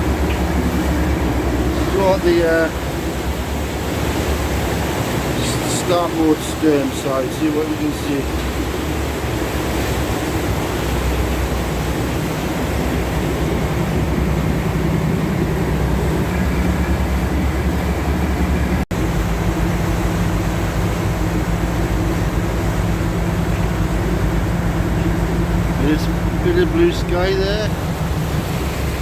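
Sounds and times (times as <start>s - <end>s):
boat engine humming: 0.0s - 29.0s
water rushing: 0.0s - 29.0s.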